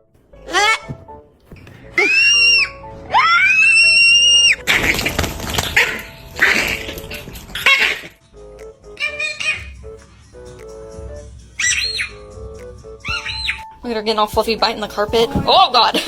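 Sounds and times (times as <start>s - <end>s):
background music: 0.0s - 16.0s
parrot screeching: 0.4s - 1.0s, 2.0s - 4.8s, 5.7s - 8.2s, 9.0s - 9.8s, 11.6s - 12.2s, 13.0s - 13.6s
parrot calling and whistling: 2.0s - 4.7s, 8.9s - 9.9s, 11.5s - 13.7s.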